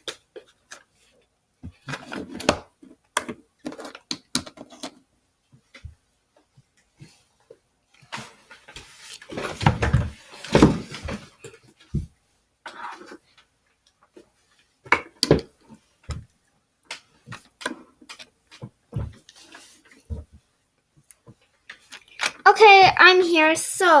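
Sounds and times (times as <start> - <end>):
plastic toys rustling and bumping: 0.0 - 5.0, 8.0 - 16.3
plastic toys clicking and knocking: 1.7 - 5.0, 21.1 - 22.9.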